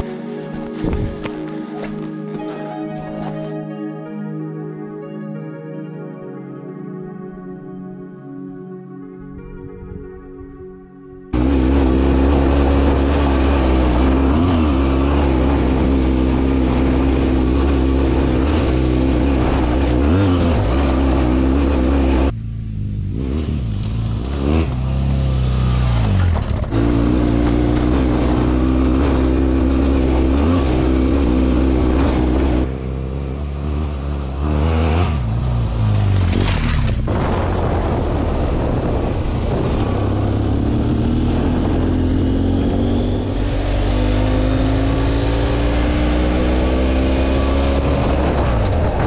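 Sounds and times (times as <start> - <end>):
motorcycle engine revving: 11.3 - 49.0.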